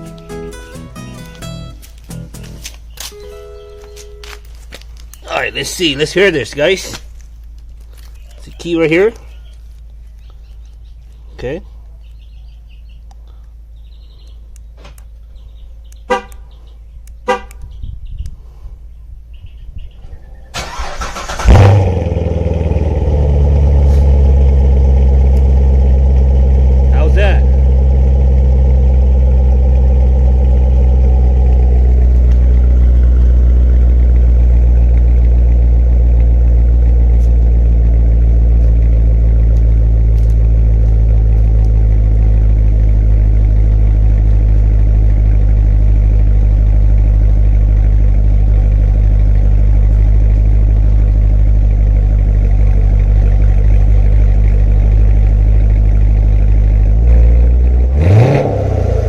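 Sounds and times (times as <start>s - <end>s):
car engine idling: 2.8s - 17.6s, 20.6s - 59.0s
engine revving: 20.6s - 59.0s.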